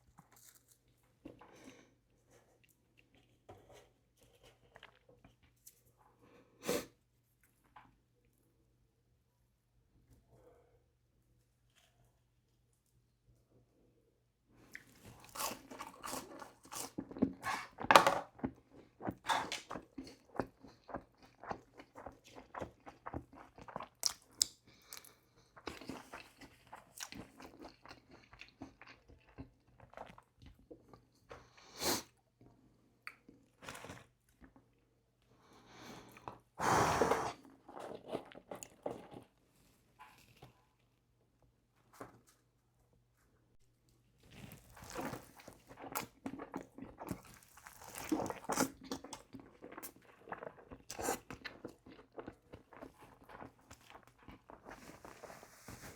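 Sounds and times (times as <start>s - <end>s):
wet chewing: 14.7s - 31.1s, 44.3s - 55.1s.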